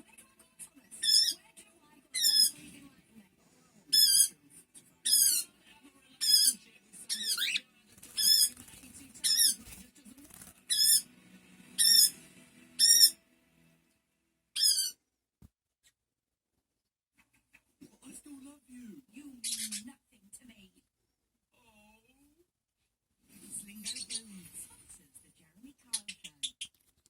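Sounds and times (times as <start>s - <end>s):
cockatiel warbling chirps: 1.0s - 1.4s, 2.2s - 2.5s, 3.9s - 4.3s, 5.1s - 5.5s, 7.1s - 7.6s, 11.8s - 12.2s, 12.8s - 13.2s, 14.6s - 15.0s.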